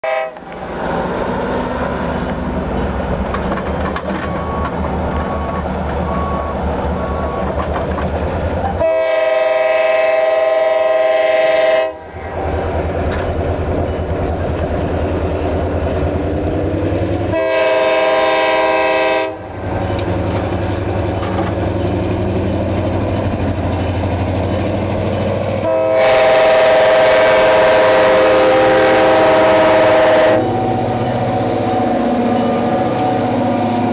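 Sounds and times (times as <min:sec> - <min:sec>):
train air horn blasts: 0:00.0 - 0:00.5, 0:08.8 - 0:12.1, 0:17.3 - 0:19.6, 0:25.6 - 0:30.8
diesel locomotive rumbling: 0:00.0 - 0:33.9.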